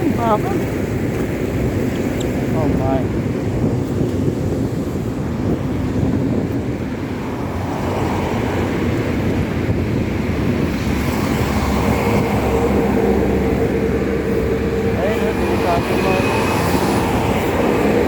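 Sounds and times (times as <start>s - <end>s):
wind and road noise: 0.0s - 18.0s
passing vehicle engine drone: 7.0s - 18.0s.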